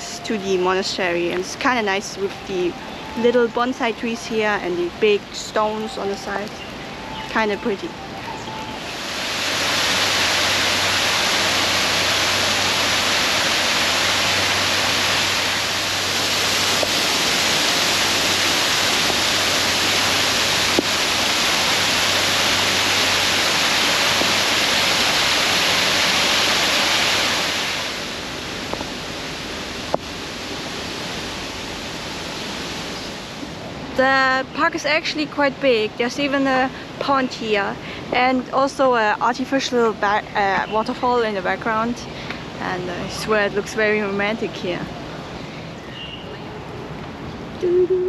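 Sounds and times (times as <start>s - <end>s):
waterfall into pond: 8.8s - 33.2s.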